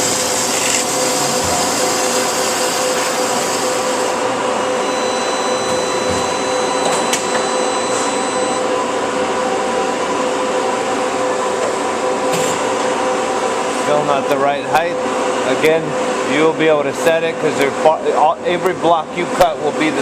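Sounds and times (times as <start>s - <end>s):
band saw cutting: 0.0s - 4.2s
thin high whine: 0.9s - 8.7s.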